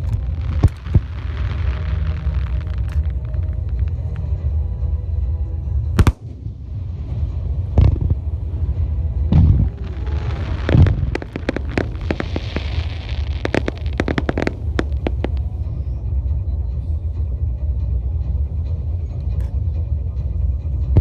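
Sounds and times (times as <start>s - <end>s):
fireworks booming: 0.0s - 4.1s, 6.0s - 15.7s
fireworks hissing: 0.0s - 4.1s, 6.0s - 6.2s, 9.4s - 15.6s
fireworks crackling: 0.0s - 4.2s, 6.0s - 6.7s, 7.7s - 15.7s
low rumble: 0.0s - 21.0s.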